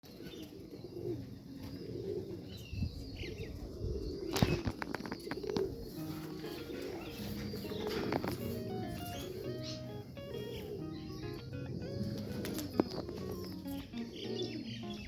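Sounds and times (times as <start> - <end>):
pigeons cooing: 0.0 - 15.0
wings flapping: 4.3 - 8.6, 12.0 - 13.8.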